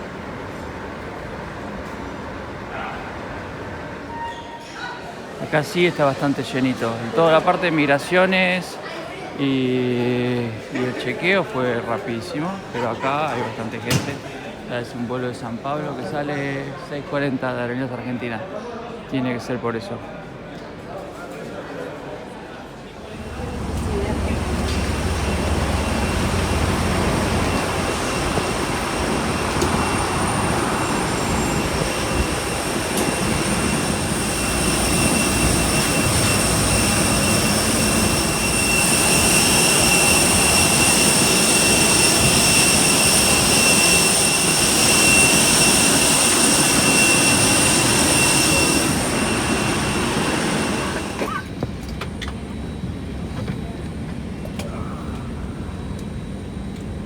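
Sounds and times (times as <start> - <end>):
jet aircraft rumble and whine: 23.0 - 57.0.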